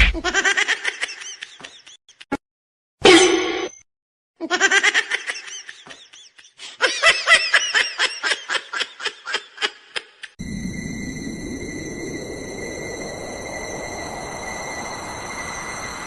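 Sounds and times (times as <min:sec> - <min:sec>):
person laughing: 0:04.4 - 0:10.3.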